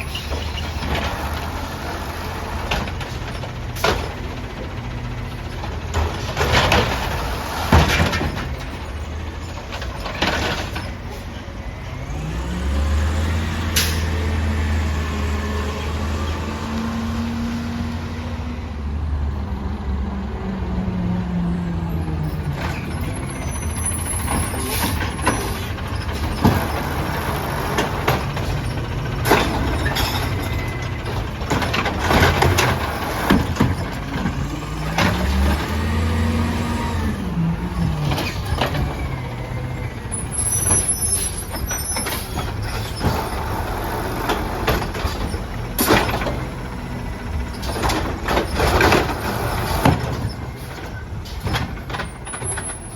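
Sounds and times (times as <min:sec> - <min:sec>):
garbage truck engine revving: 0:00.0 - 0:21.7, 0:22.4 - 0:52.9
bangs and clanks of collection: 0:05.9 - 0:08.8, 0:24.2 - 0:35.3, 0:47.5 - 0:52.9.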